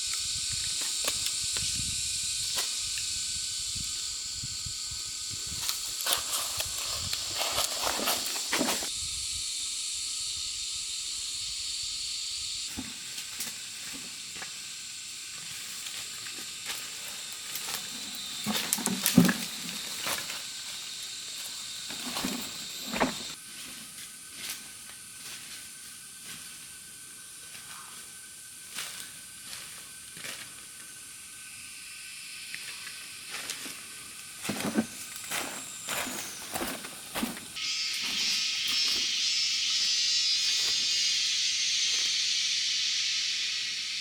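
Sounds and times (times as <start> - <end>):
steady high hiss: 0.0 - 44.0.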